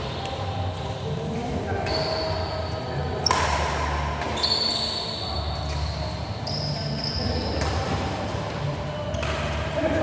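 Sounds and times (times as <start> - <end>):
shoe squeaks on court floor: 1.8 - 3.5, 4.2 - 8.0
racket hitting shuttlecock: 3.2 - 4.8, 7.6 - 8.4, 9.1 - 9.7.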